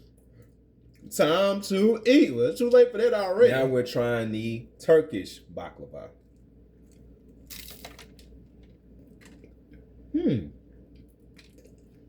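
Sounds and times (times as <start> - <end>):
quiet chewing: 6.2 - 12.0
pastry crunching: 6.3 - 9.9, 10.9 - 12.0
man murmuring mm: 10.1 - 10.6.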